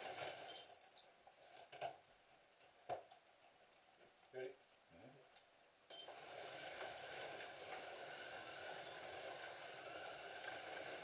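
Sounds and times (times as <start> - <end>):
short high beeps: 0.6 - 1.2
slot cars whirring: 5.9 - 11.0.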